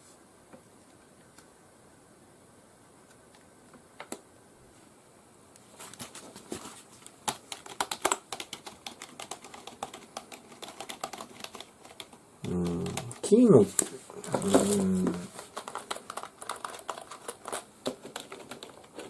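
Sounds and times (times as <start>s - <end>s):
keyboard typing: 7.2s - 13.4s, 14.3s - 19.0s.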